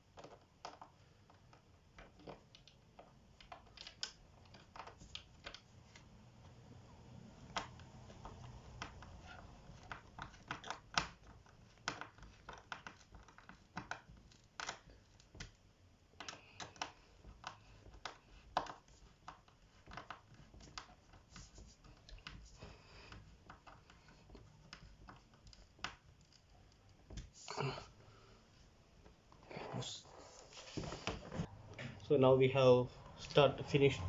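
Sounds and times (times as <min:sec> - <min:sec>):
plastic clips clicking and knocking: 0:00.1 - 0:05.7, 0:07.5 - 0:15.6, 0:16.2 - 0:21.2.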